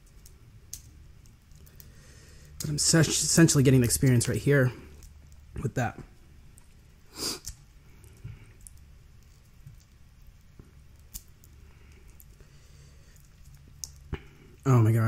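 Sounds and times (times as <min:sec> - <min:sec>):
seafood shell cracking open: 0:07.4 - 0:12.4.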